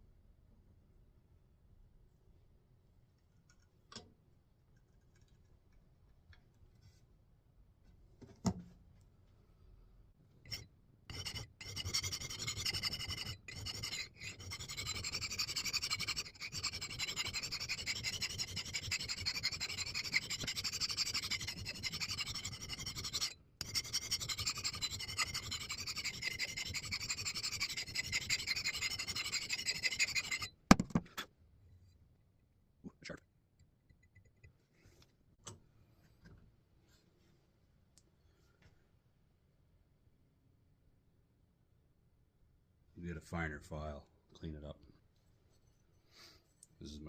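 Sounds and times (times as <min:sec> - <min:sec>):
file rasping on axe head: 0:10.5 - 0:30.5.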